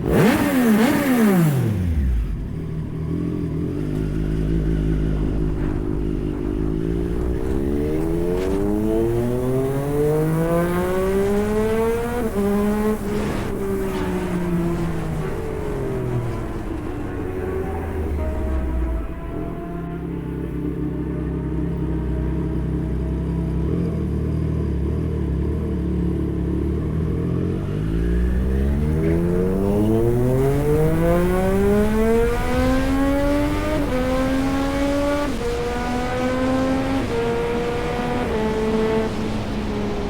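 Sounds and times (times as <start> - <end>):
motorcycle gear shifts: 0.0 - 20.5
motorcycle engine accelerating: 0.0 - 40.0.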